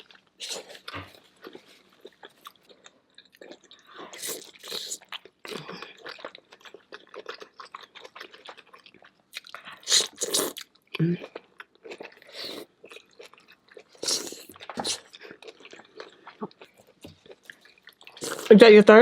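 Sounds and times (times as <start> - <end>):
wet chewing and biting: 0.0 - 18.5.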